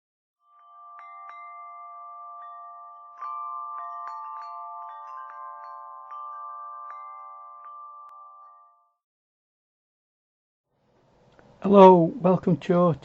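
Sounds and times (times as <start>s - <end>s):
wind chimes ringing: 0.4s - 9.0s.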